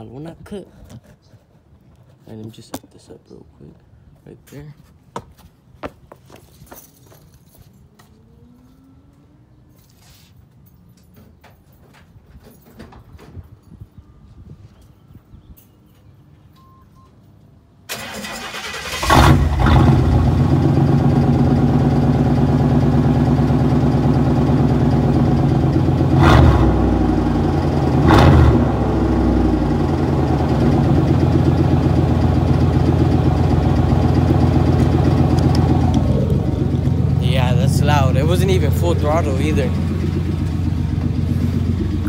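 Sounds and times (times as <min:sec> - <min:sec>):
truck engine starting and idling: 0:17.8 - 0:42.0
engine revving: 0:17.9 - 0:42.0.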